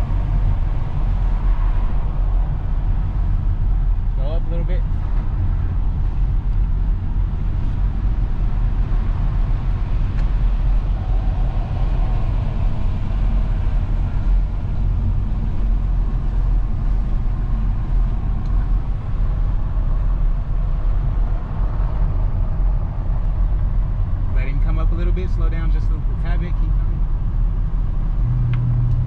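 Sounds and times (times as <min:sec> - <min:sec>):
car road rumble: 0:00.0 - 0:29.0.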